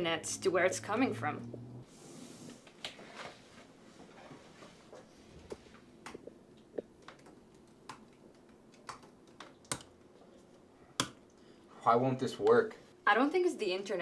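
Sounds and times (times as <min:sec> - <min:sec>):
keyboard typing clicks: 0:05.5 - 0:09.9.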